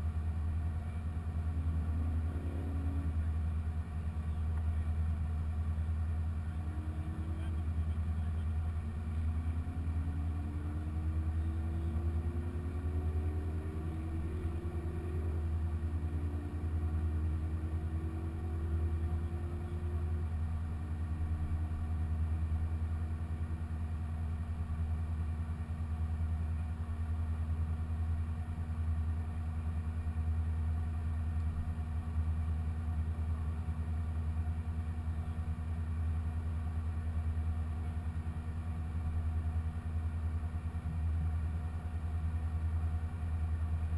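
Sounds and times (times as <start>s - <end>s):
car engine rumbling: 0.0s - 43.9s
faint rising tone: 1.0s - 3.4s, 9.2s - 20.5s.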